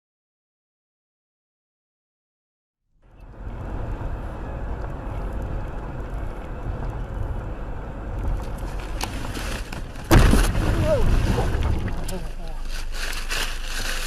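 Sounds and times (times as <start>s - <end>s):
vehicle road and engine rumble: 3.0s - 14.0s.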